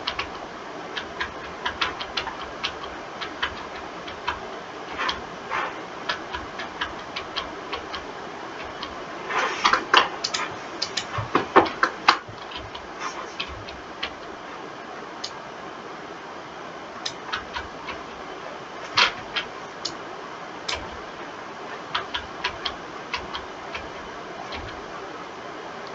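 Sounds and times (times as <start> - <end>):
mouse and keyboard clicking: 0.0 - 0.4, 1.0 - 5.3, 6.0 - 14.3, 17.0 - 18.1, 18.9 - 20.0, 20.7 - 21.0, 21.7 - 24.8.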